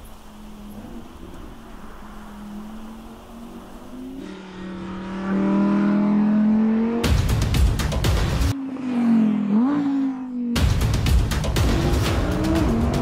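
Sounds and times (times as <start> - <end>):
car passing with tyre noise: 0.0 - 7.5, 8.4 - 10.6
car engine revving: 0.0 - 13.0.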